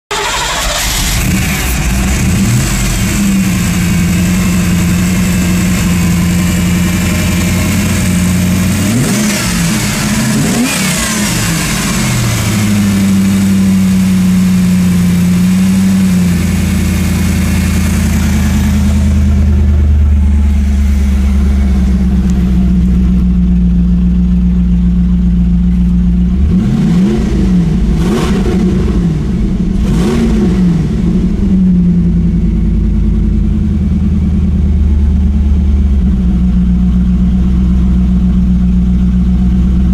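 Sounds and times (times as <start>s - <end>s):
car engine idling and revving: 0.1s - 39.9s.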